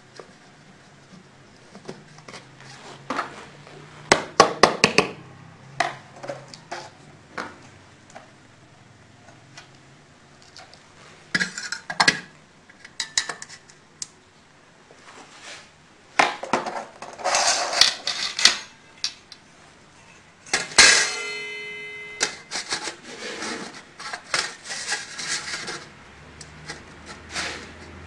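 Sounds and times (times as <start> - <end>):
metal tools clattering: 17.2 - 19.2, 20.5 - 22.8
sharp metal clang: 20.5 - 22.6.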